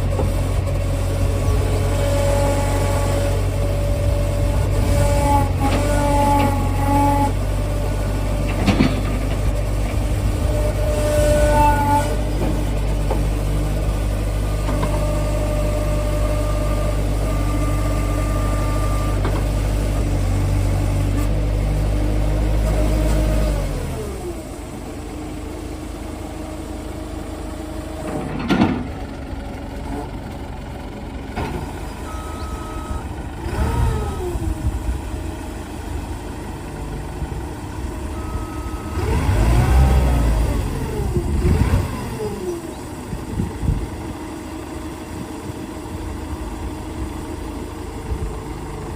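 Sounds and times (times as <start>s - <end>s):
backhoe diesel engine: 0.0s - 48.9s
short beeps: 32.0s - 33.1s, 38.1s - 39.0s.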